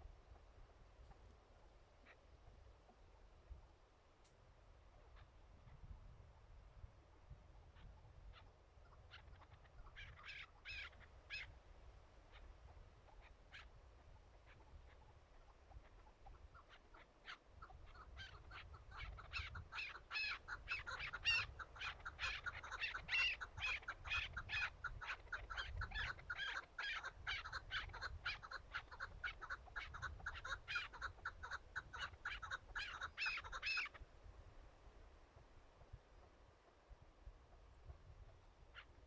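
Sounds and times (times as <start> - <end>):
partridge clucking call: 14.4 - 34.0.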